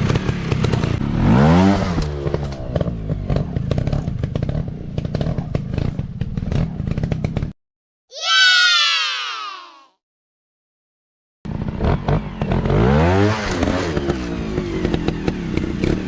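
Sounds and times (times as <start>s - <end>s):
dirt bike engine revving: 0.0s - 7.4s, 11.5s - 16.0s.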